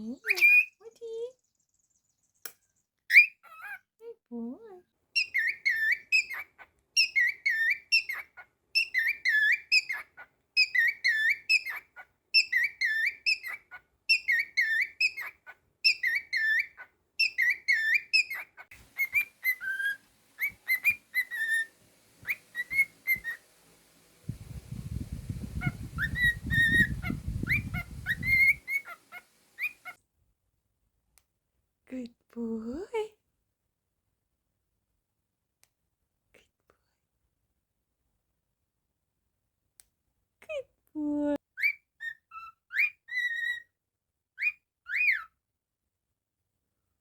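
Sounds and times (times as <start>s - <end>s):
cockatiel whistling: 5.2s - 8.2s, 8.8s - 11.8s, 12.4s - 15.3s, 15.9s - 23.5s, 25.4s - 30.0s, 41.6s - 43.6s.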